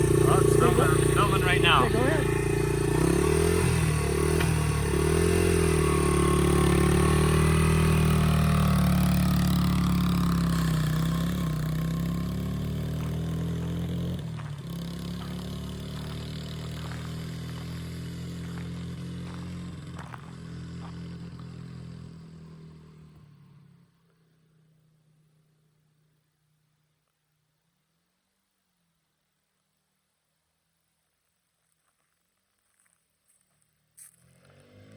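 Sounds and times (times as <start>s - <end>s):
motorcycle engine revving: 0.0s - 23.8s, 34.0s - 34.9s.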